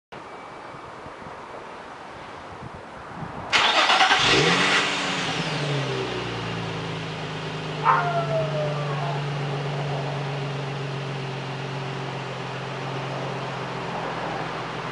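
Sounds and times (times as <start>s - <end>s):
car engine revving and idling: 3.6s - 14.9s.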